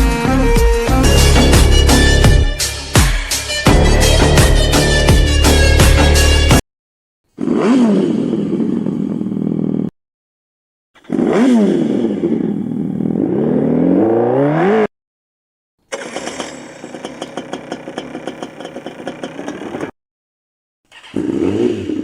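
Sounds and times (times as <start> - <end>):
artificial motorcycle engine sound: 7.3 - 9.9, 11.0 - 14.9, 15.9 - 20.0, 20.9 - 22.0.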